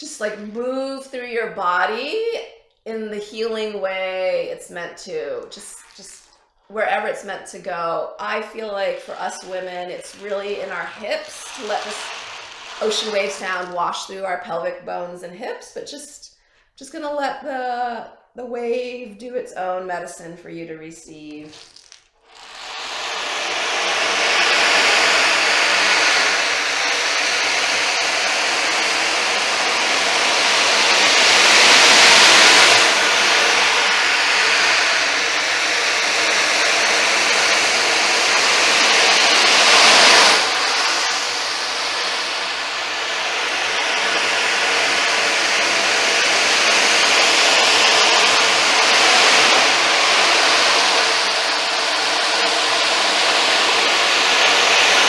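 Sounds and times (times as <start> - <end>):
ocean drum beads rolling: 5.6 - 6.4, 8.9 - 13.8, 21.3 - 24.1.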